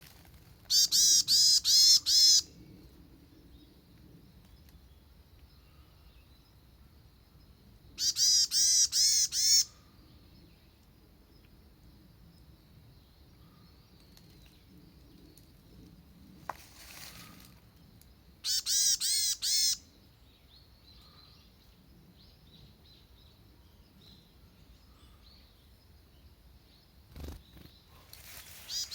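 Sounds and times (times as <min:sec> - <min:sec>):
small bird chirping: 0:00.7 - 0:02.5, 0:07.9 - 0:11.6, 0:18.4 - 0:28.9.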